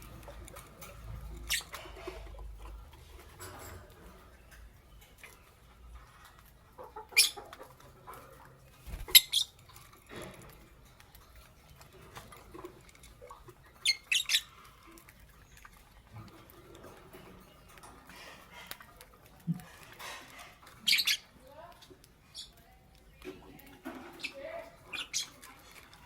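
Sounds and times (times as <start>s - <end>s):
lovebirds chirping: 0.9s - 2.0s, 6.8s - 7.7s, 8.7s - 10.2s, 13.7s - 15.9s, 20.3s - 26.0s.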